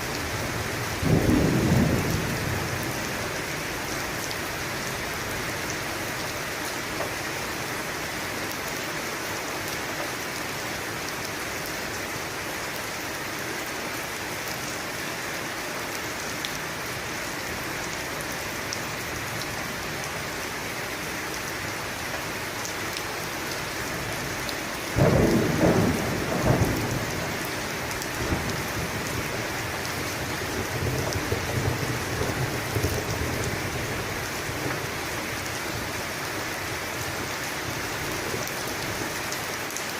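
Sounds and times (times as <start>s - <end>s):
steady rain: 0.0s - 39.9s
thunder cracking and rumbling: 0.8s - 3.3s, 25.0s - 27.5s.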